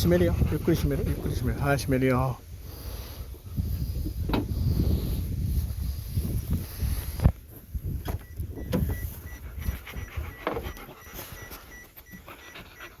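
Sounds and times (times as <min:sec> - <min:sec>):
dog panting: 0:00.0 - 0:01.9, 0:09.1 - 0:13.0.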